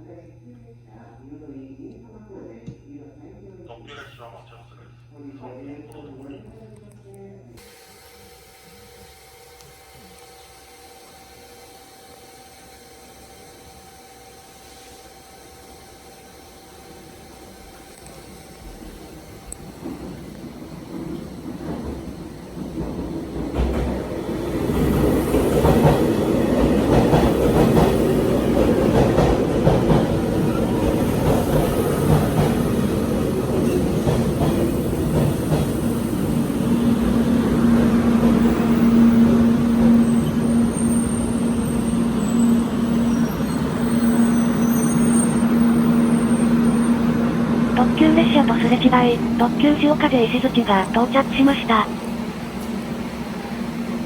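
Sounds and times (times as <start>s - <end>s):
steady hum: 47.6s - 52.1s.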